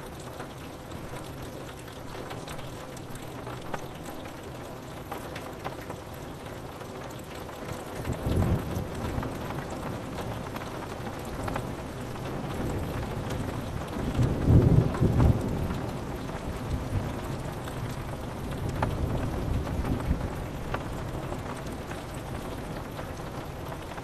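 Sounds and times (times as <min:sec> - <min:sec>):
steady rain: 0:00.0 - 0:24.0
low thunder roll: 0:14.0 - 0:21.6.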